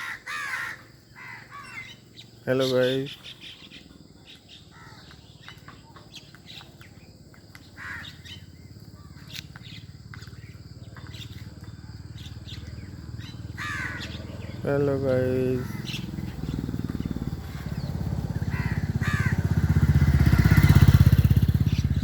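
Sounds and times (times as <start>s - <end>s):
crow cawing: 0.0s - 2.0s, 4.7s - 5.2s, 7.7s - 9.2s, 13.1s - 14.6s, 15.5s - 16.2s, 17.4s - 21.0s
birds chirping and tweeting: 0.0s - 22.0s.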